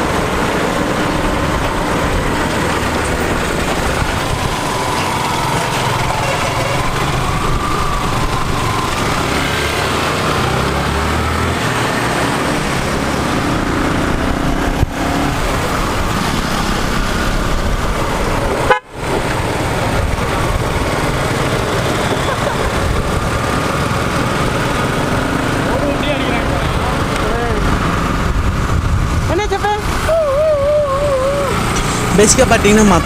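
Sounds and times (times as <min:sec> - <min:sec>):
motorcycle engine and road noise: 0:00.0 - 0:33.0
vehicle horns honking: 0:18.6 - 0:19.0.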